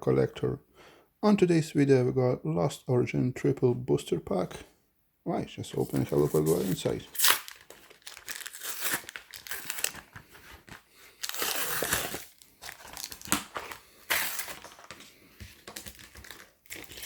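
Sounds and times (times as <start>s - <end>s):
plastic packaging crinkling: 5.8s - 17.0s.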